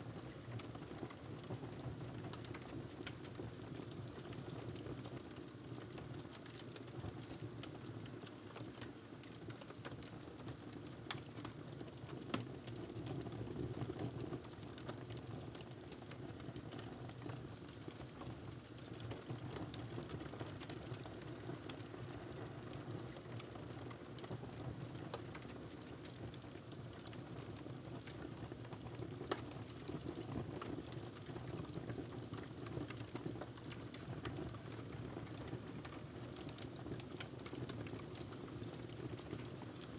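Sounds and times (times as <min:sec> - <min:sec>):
wood fire crackling: 0:25.0 - 0:31.0.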